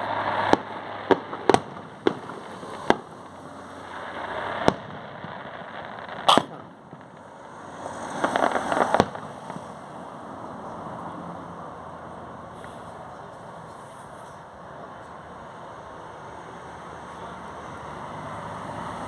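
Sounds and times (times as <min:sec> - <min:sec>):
fireworks bangs: 0:00.0 - 0:11.5
fireworks crackling: 0:00.0 - 0:18.0.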